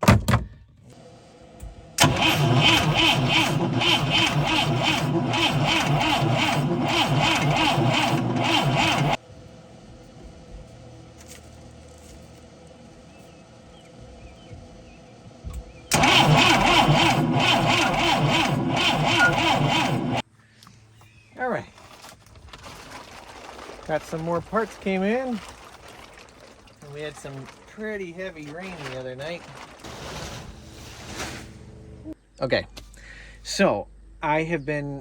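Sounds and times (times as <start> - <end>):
boat engine cranking: 2.0 - 9.2, 15.9 - 20.2.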